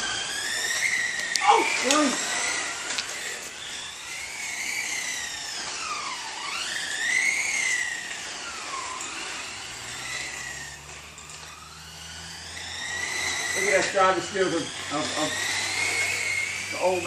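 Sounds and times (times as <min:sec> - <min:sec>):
rc car electric motors whining: 0:00.0 - 0:17.0.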